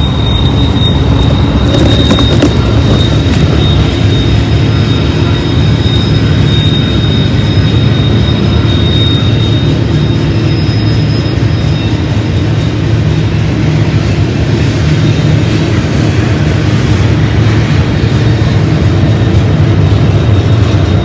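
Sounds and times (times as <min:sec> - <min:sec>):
high-pitched wheel squeal: 0:00.0 - 0:13.9
freight train rumbling past: 0:00.0 - 0:21.0.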